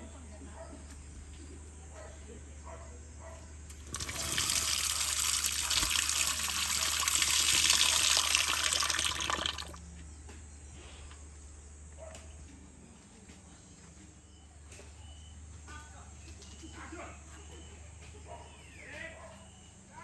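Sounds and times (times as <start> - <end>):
running water rushing: 3.7 - 9.8.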